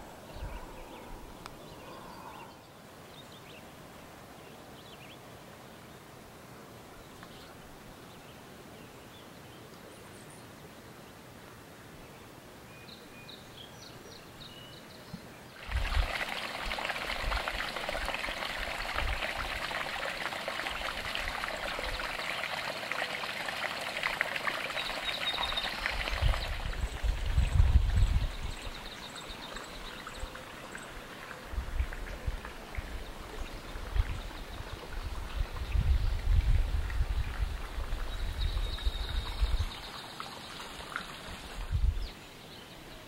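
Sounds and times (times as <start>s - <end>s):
wind thumps on microphone: 15.6s - 16.2s, 26.0s - 28.8s, 33.8s - 39.8s, 41.6s - 42.1s
flowing splashing water: 15.6s - 42.0s.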